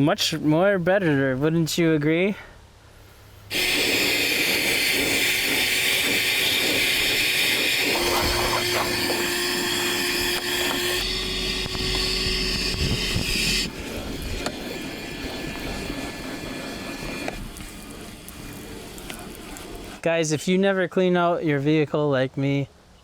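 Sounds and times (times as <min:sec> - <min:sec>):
vacuum cleaner running: 0:03.5 - 0:20.0.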